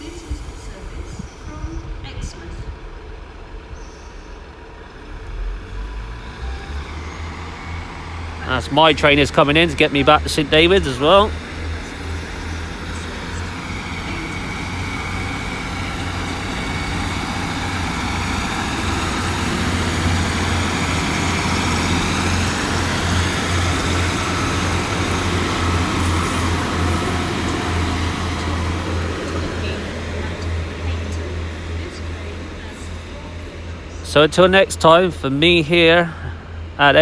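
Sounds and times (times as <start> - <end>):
diesel train engines running: 0.0 - 37.0
high-pitched brake squeals: 20.0 - 31.2.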